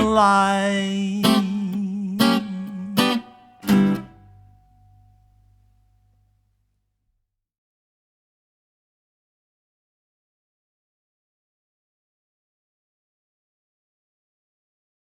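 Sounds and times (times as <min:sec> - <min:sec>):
guitar strumming chords: 0:00.0 - 0:05.4.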